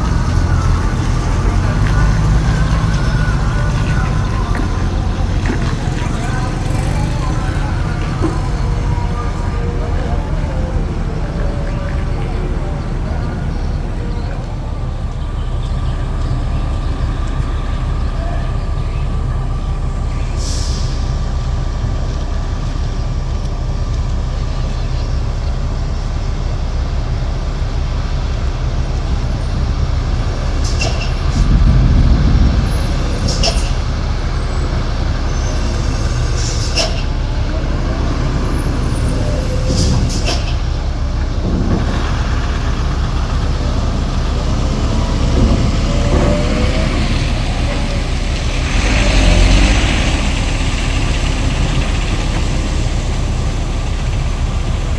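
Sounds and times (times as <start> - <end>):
heavy diesel trucks running: 0.0 - 54.9
air brake hisses: 20.3 - 21.1.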